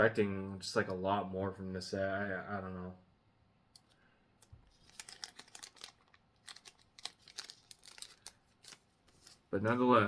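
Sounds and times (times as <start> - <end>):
cards clicking and rustling: 4.7 - 9.9.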